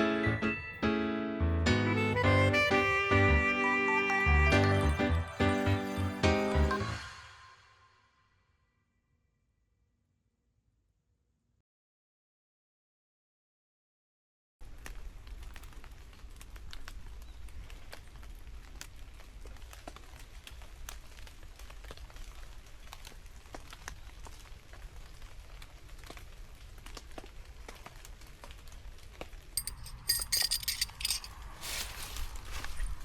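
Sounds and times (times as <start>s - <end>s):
rain drops ticking: 14.7s - 29.4s
rustling and crinkling material: 29.8s - 33.0s.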